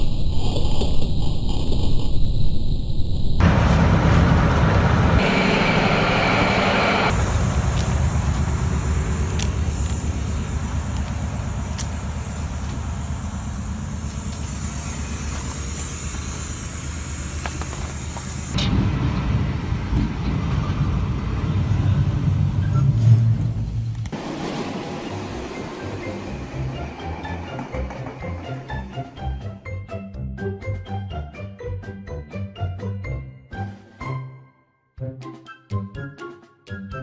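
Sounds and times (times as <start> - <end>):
train rolling on steel rails: 3.4 - 29.6
high hiss: 5.2 - 18.6.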